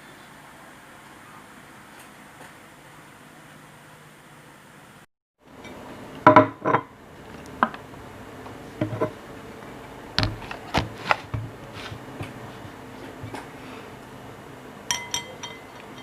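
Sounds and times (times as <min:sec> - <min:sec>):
kitchenware knocking and clinking: 0:05.7 - 0:06.9, 0:08.8 - 0:09.2, 0:14.9 - 0:16.0.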